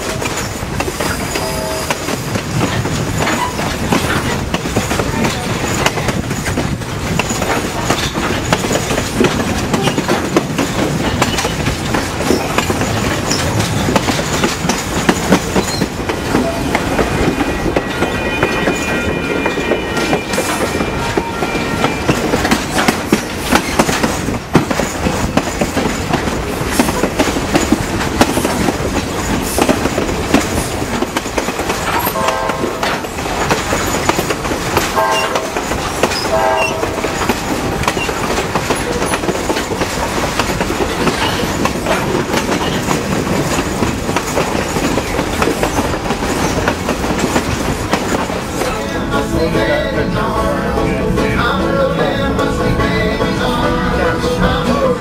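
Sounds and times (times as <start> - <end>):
train wheels rumbling on rails: 0.0 - 55.0
wind: 0.0 - 55.0
train horn blasts: 1.3 - 2.0, 17.3 - 22.5, 32.0 - 33.2, 35.0 - 37.9.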